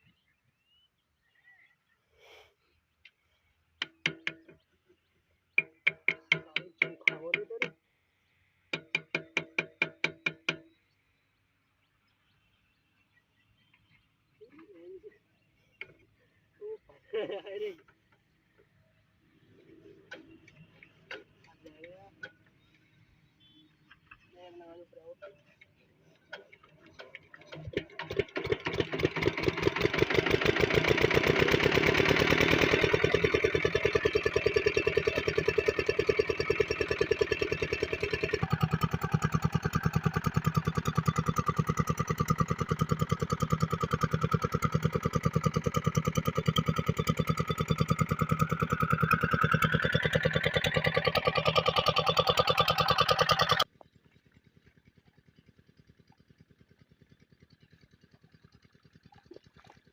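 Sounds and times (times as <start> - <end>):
diesel pump engine running: 25.5 - 59.9.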